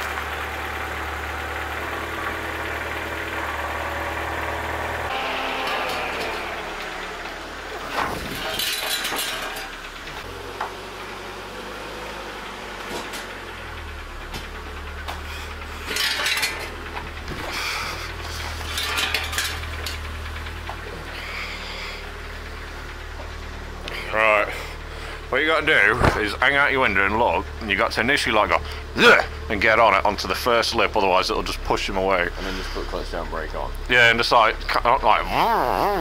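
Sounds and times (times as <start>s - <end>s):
car engine idling: 0.0s - 35.9s
short clattering noises: 25.9s - 26.4s.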